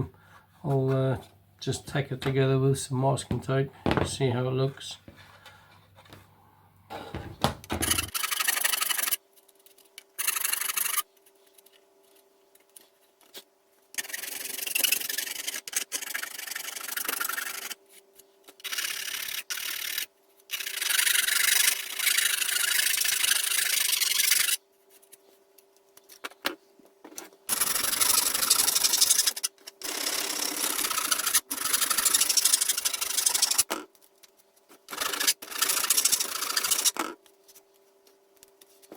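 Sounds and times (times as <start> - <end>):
faint hum: 0.0 - 8.1
hand file rasping on plastic: 14.0 - 17.8, 34.8 - 37.1.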